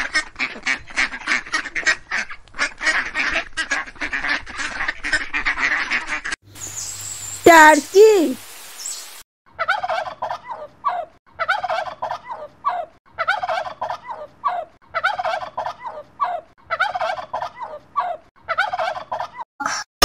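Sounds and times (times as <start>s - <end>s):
turkey gobbling: 9.6s - 19.4s.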